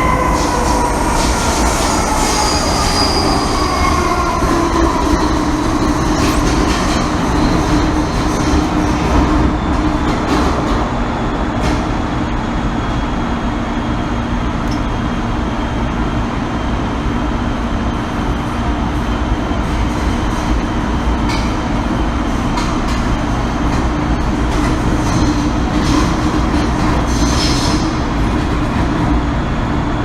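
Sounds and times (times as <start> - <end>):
steady train hum: 0.0 - 30.0
train wheels rumbling on rail: 0.0 - 30.0.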